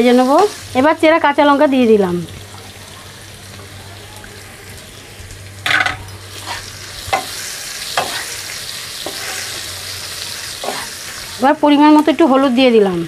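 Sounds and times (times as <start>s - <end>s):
onions sizzling in oil: 0.0s - 13.0s
wooden spatula scraping pan: 9.0s - 9.7s.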